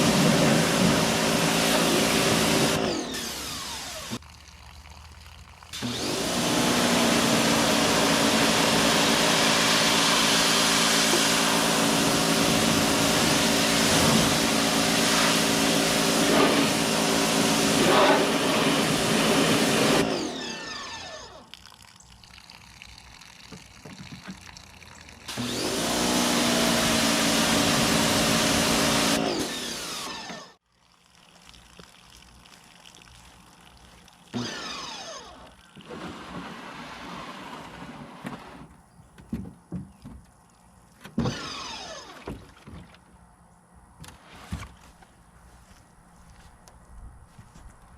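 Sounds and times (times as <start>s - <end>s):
pressure washer motor hum: 0.0s - 4.2s, 5.7s - 21.5s, 25.3s - 30.6s, 34.3s - 38.7s.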